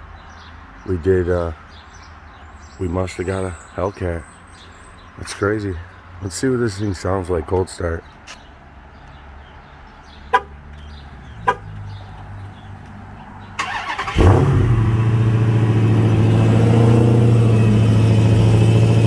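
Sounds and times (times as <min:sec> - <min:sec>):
car engine starting and idling: 0:10.3 - 0:19.0
engine cranking: 0:13.6 - 0:19.0.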